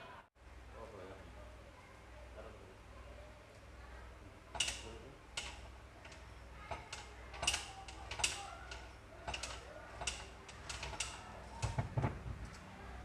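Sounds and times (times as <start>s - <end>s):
tools and engine parts clicking: 4.5s - 12.6s.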